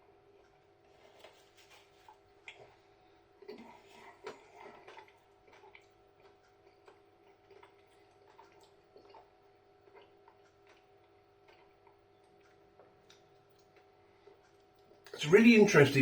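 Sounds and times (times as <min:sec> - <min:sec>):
mouth clicks from chewing: 0:03.5 - 0:14.8.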